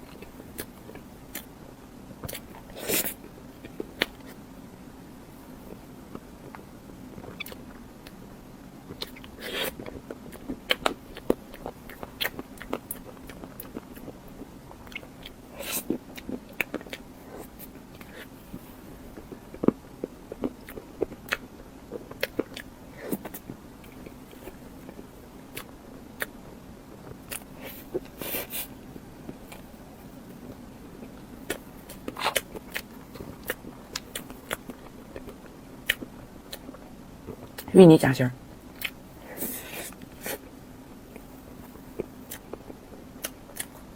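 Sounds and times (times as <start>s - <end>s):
person crunching food: 27.0s - 37.7s.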